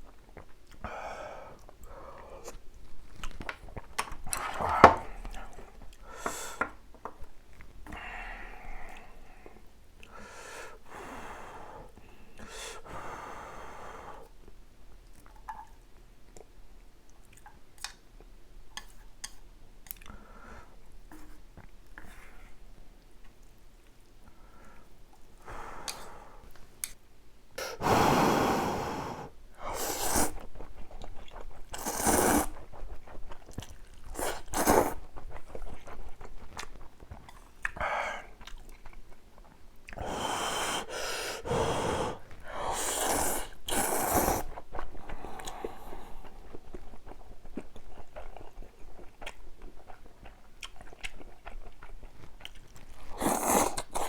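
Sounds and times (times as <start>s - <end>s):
chewing: 1.6s - 6.0s, 30.1s - 40.1s, 42.2s - 54.0s
noodles slurped: 27.6s - 38.9s, 39.9s - 54.0s.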